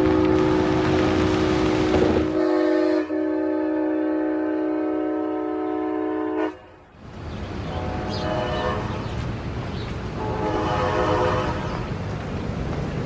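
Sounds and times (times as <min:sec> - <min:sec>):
locomotive air horn: 0:00.0 - 0:06.8, 0:07.7 - 0:09.0, 0:10.2 - 0:11.9
train rumbling along track: 0:00.0 - 0:13.0.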